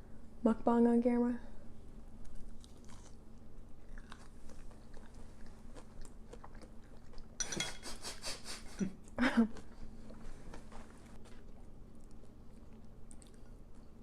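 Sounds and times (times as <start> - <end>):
crunchy bite crackling: 2.2 - 7.2
munching onion rings: 2.2 - 14.0.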